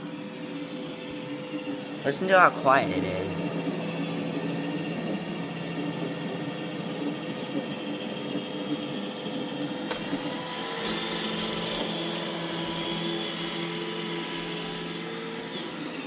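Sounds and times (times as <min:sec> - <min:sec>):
robot vacuum motor hum: 0:00.0 - 0:16.0.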